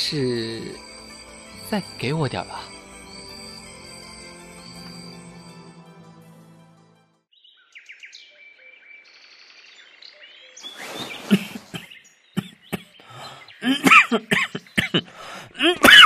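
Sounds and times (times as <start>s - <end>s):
music cue: 0.0s - 7.3s
small birds chirping: 7.3s - 15.2s
rustling: 10.6s - 11.7s.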